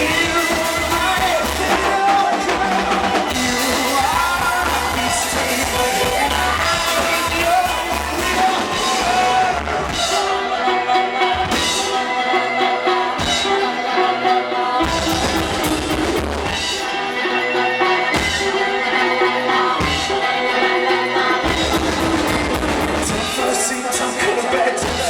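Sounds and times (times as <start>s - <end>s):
live band playing: 0.0s - 25.0s
bass drum and snare: 21.5s - 23.5s.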